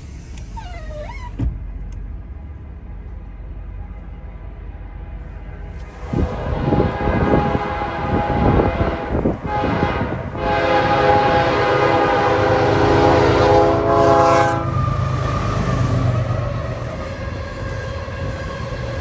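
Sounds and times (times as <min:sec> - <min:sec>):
rumble of oncoming train: 0:00.0 - 0:19.0
locomotive air horn chord: 0:03.8 - 0:16.1.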